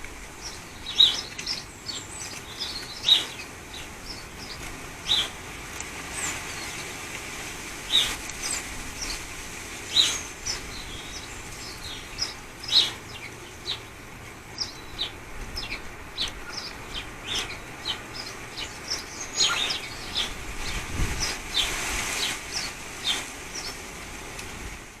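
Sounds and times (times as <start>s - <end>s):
birds chirping: 0.0s - 7.1s, 7.8s - 24.0s
wind rushing: 19.6s - 22.7s.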